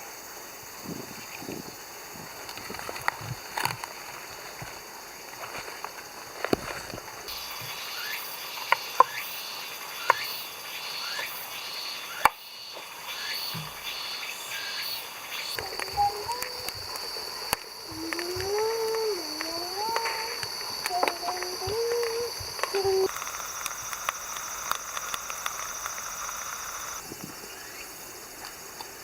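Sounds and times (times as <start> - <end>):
high-pitched insect chirring: 6.9 - 27.9
voice gliding up and down: 15.6 - 23.1.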